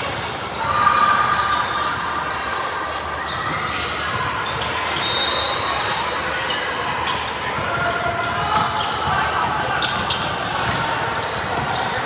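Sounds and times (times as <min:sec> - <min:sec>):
voices of players and spectators: 0:00.0 - 0:12.0
basketball bouncing on court: 0:07.5 - 0:12.0.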